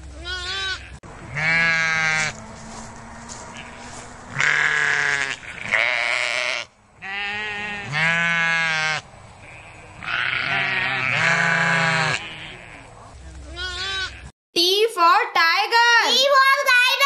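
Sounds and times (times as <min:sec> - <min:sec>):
sheep bleating: 0:00.1 - 0:02.4, 0:03.2 - 0:12.9, 0:13.5 - 0:14.3.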